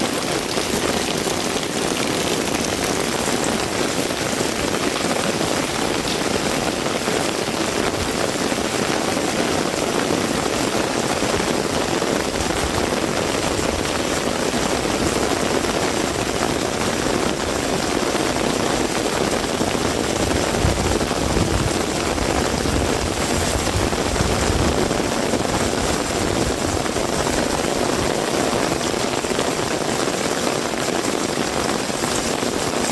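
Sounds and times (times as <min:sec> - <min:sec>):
heavy rain pouring: 0:00.0 - 0:32.9.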